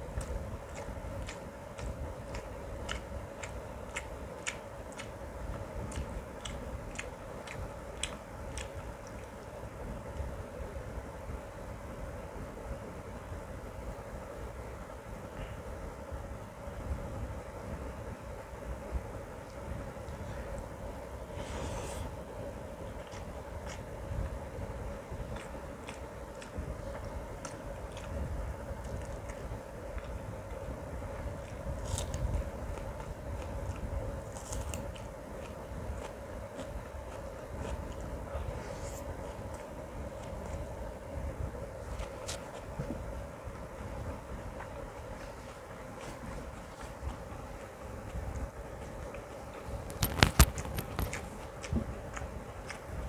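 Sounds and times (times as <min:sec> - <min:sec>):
low steady rumble: 0:00.0 - 0:53.0
steady hum: 0:00.0 - 0:53.0
chewing mouth clicks: 0:00.2 - 0:09.4, 0:23.0 - 0:24.4, 0:45.5 - 0:53.0.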